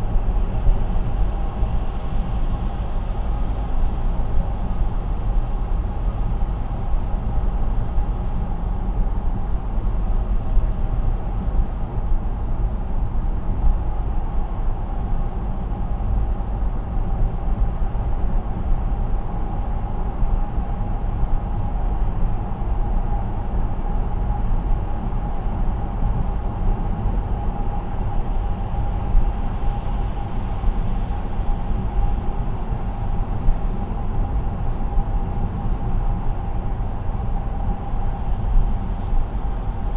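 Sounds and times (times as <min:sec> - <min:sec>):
faint steady hum: 0:00.0 - 0:39.9
low rumble: 0:00.0 - 0:39.9
road and tyre noise: 0:00.0 - 0:39.9.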